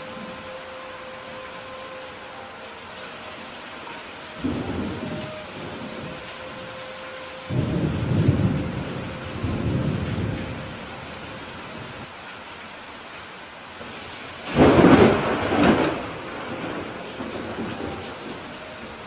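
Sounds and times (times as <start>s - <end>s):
steady rain falling: 0.0s - 19.0s
thunder rumbling: 4.3s - 6.8s, 7.4s - 12.1s, 14.0s - 19.0s.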